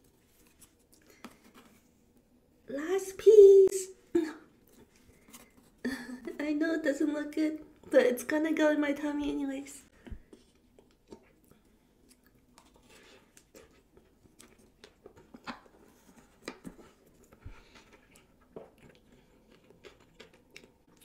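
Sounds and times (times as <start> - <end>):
wet chewing mouth sounds: 17.6 - 21.0.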